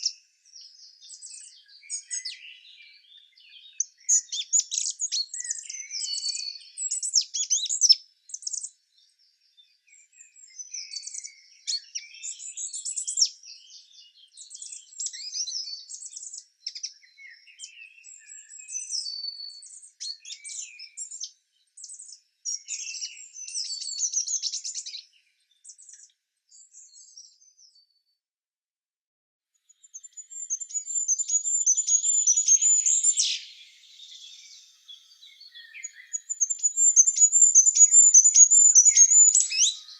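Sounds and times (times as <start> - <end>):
songbirds twittering: 0.0 - 28.1, 29.6 - 39.9
high bird trill: 30.3 - 39.9.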